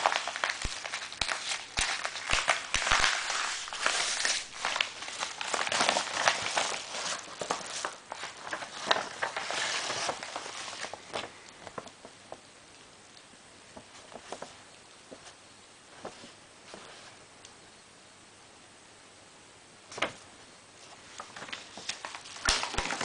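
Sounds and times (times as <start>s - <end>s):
packaging rustling and crinkling: 0.0s - 12.4s, 13.8s - 15.4s, 20.9s - 23.0s.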